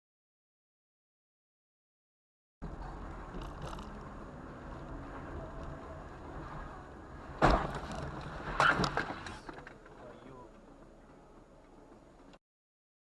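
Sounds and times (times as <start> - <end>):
car road noise: 2.6 - 12.4.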